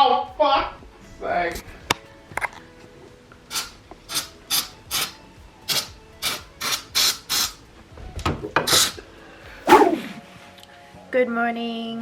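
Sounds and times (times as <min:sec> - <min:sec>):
rasping scraping strokes: 0:09.7 - 0:10.1.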